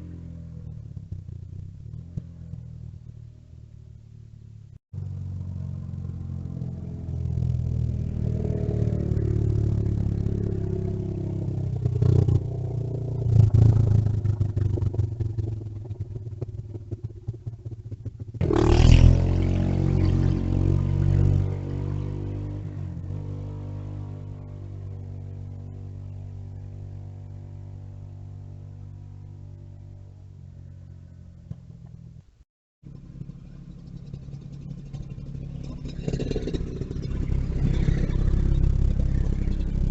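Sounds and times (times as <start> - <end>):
mini bike engines revving: 18.4 - 24.3, 33.0 - 39.9.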